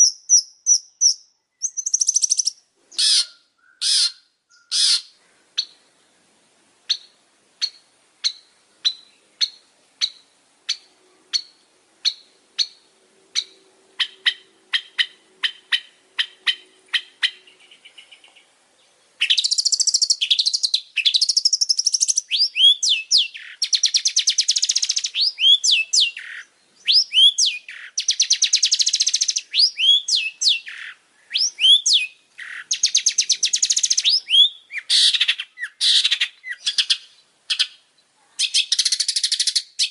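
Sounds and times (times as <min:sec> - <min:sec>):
shrike singing: 0:19.2 - 0:37.2.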